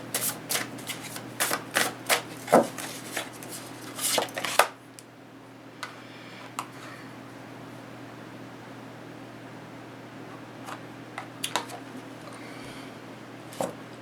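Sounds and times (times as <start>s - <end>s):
cards being shuffled: 0.1s - 4.7s.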